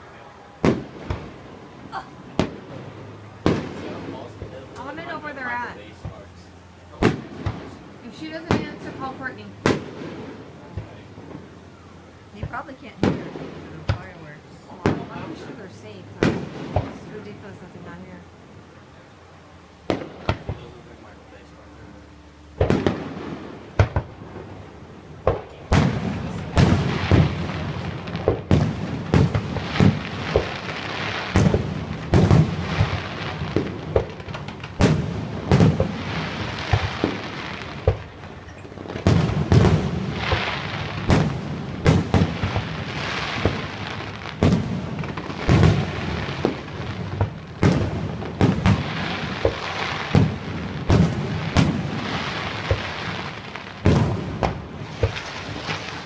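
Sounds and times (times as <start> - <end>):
firework shells booming: 0.0 - 5.4, 6.0 - 17.6, 19.8 - 21.6, 22.6 - 56.0
firework crackle: 0.0 - 56.0.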